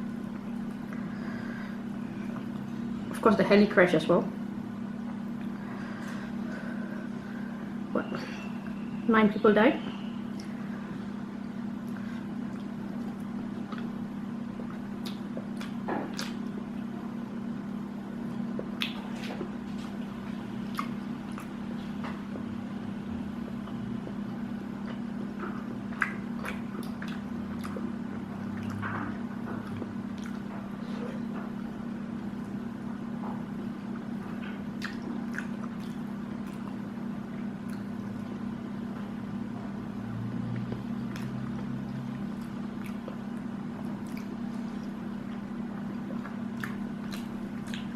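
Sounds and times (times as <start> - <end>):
steady low hum: 0.0 - 47.9
close-miked chewing: 11.8 - 14.0, 14.6 - 16.6, 18.2 - 21.6, 23.6 - 31.4, 34.3 - 38.4, 40.5 - 47.9.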